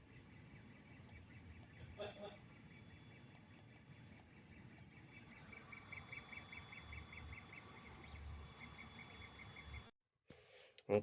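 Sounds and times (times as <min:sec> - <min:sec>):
faint high pulsing chirps: 0:00.1 - 0:09.9
faint clicks: 0:03.3 - 0:04.9.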